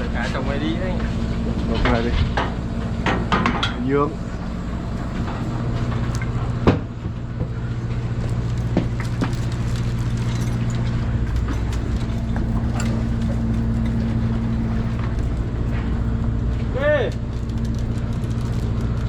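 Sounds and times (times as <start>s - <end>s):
boat engine humming: 0.0s - 19.0s
gear knocking and clanking: 4.7s - 19.0s.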